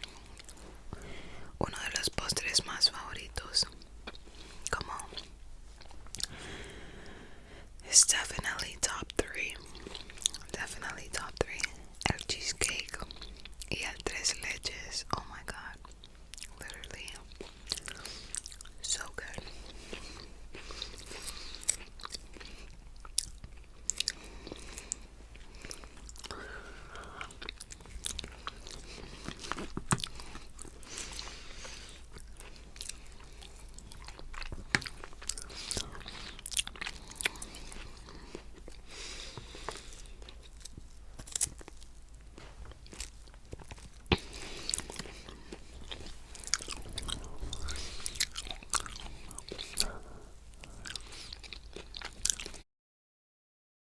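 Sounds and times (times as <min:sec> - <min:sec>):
wet chewing and smacking: 0:00.0 - 0:01.1, 0:01.7 - 0:06.8, 0:08.2 - 0:52.6
crunching food: 0:15.8 - 0:52.6.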